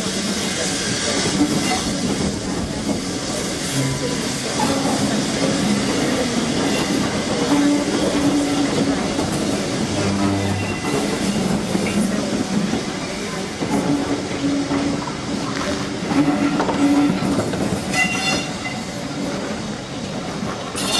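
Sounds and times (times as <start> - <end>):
train wheels clattering over rails: 0.0 - 20.9.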